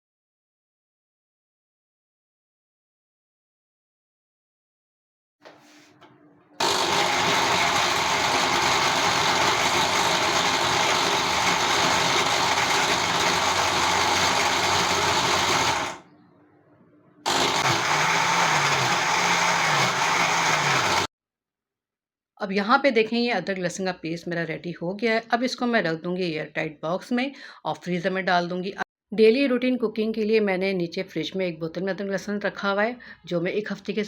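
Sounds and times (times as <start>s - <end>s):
electric mixer grinder running: 6.6s - 16.1s, 17.3s - 21.1s.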